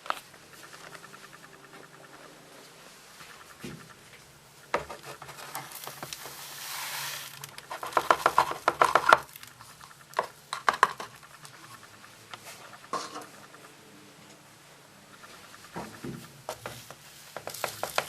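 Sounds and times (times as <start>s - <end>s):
faint low hum: 0.0s - 6.4s, 7.3s - 17.1s
water rushing hiss: 6.2s - 7.4s.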